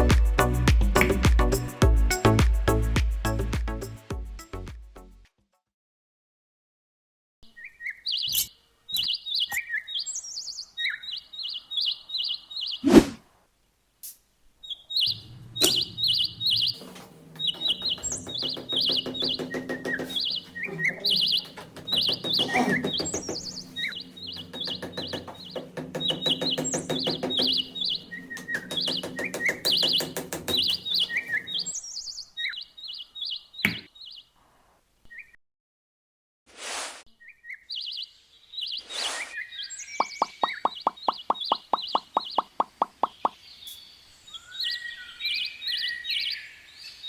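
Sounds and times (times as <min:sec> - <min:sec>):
music with steady pulse: 0:00.0 - 0:05.2
birds chirping: 0:07.4 - 0:13.2, 0:14.6 - 0:34.4, 0:37.2 - 0:47.0.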